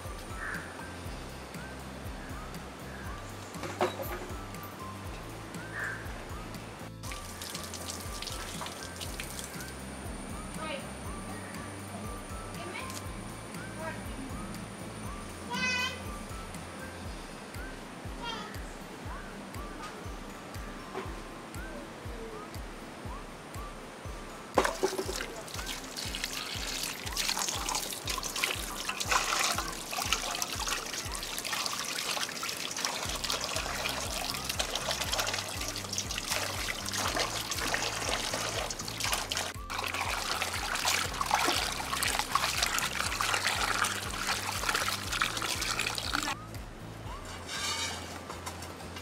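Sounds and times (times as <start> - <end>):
background music: 0.0 - 49.0
tap water splashing into pot: 7.0 - 9.6, 24.6 - 46.4.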